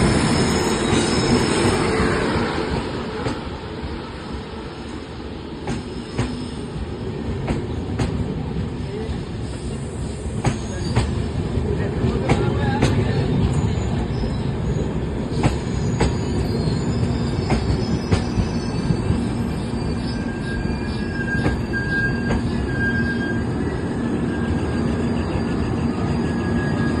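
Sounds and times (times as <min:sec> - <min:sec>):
rumble of train wheels: 0:00.0 - 0:27.0
faint wheel squeal: 0:15.5 - 0:27.0.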